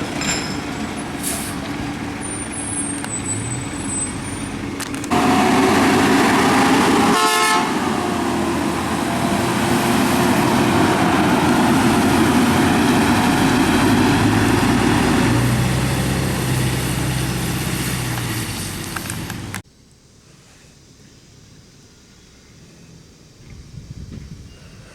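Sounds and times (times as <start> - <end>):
garbage truck engine running: 0.0 - 19.6
short horn toot: 6.9 - 7.8.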